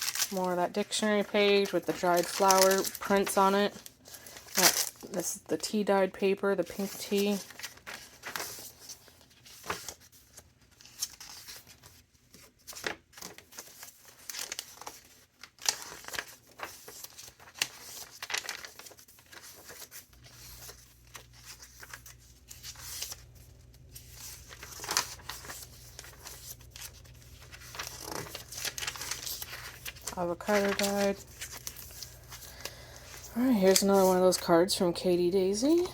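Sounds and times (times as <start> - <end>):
paper pages rustling and flicking: 0.0 - 5.2, 6.7 - 34.6.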